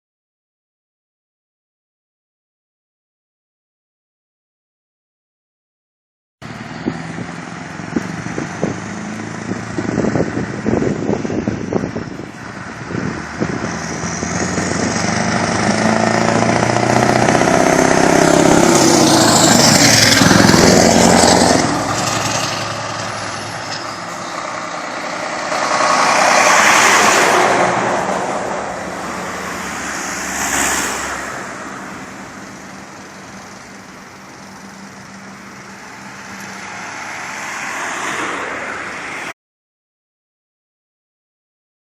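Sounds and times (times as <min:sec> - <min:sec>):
diesel truck accelerating: 0:06.4 - 0:39.2.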